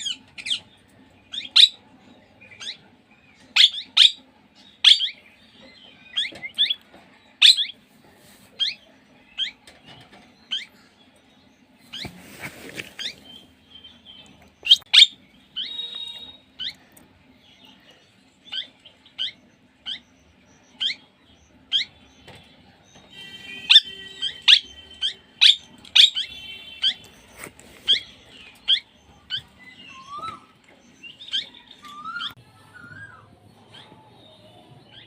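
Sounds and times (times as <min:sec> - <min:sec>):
parrot calling: 0:23.2 - 0:30.5.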